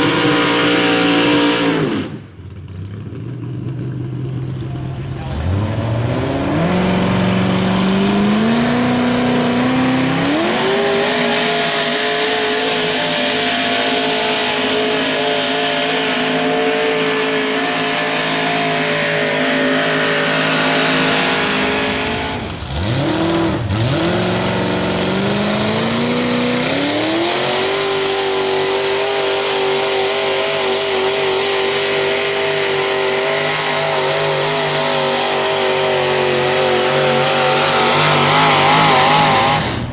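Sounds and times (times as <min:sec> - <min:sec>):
garden tractor engine revving high: 0:00.0 - 0:03.0, 0:04.4 - 0:39.9.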